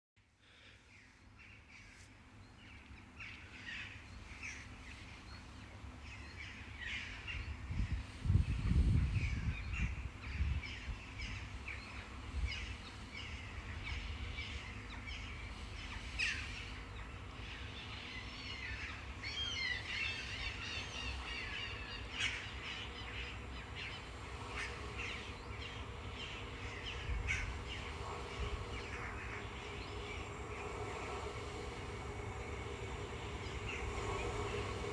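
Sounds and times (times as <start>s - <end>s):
faint steady hum: 0.2s - 34.9s
birds chirping: 9.2s - 34.9s.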